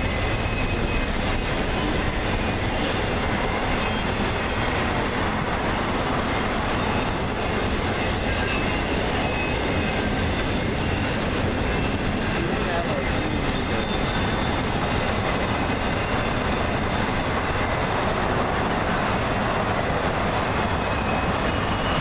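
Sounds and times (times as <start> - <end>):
high-pitched wheel squeals: 0.0 - 1.9, 6.7 - 12.0, 12.9 - 15.2, 20.7 - 22.0
train wheels rumbling on rail: 0.0 - 22.0.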